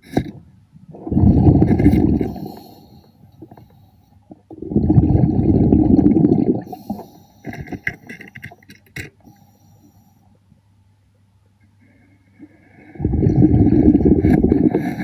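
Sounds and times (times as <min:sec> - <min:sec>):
faint low hum: 0:00.1 - 0:15.0
underwater breath bubbles: 0:00.9 - 0:03.9, 0:04.5 - 0:08.6, 0:12.4 - 0:15.0.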